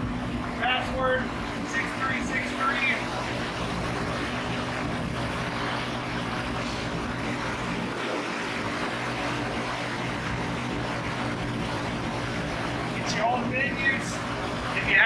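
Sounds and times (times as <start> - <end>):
rooftop hvac unit drone: 0.0 - 15.0.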